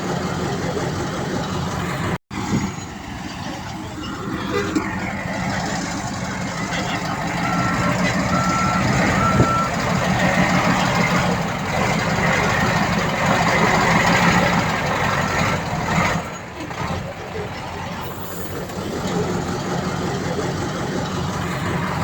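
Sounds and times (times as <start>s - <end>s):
diesel machine engine running: 0.0s - 22.0s
reversing alarm beeps: 7.3s - 9.8s.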